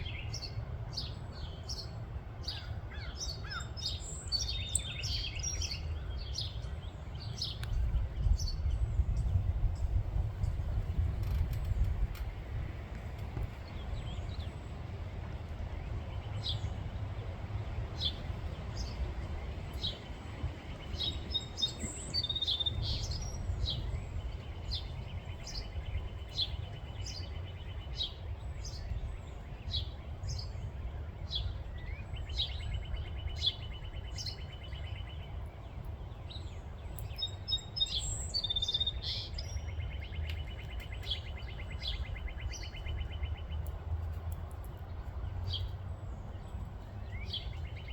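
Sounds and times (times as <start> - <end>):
small birds chirping: 0.0 - 47.9
steady low rumble: 4.9 - 34.4.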